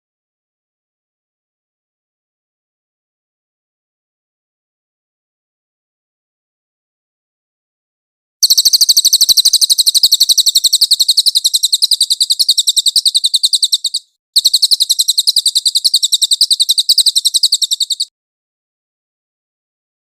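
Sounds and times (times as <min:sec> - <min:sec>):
caged bird singing rapid high notes: 0:08.4 - 0:18.1.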